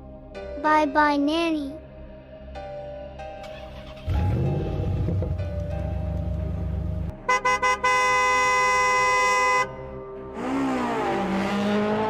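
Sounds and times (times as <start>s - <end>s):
car horn toots: 7.2s - 9.8s.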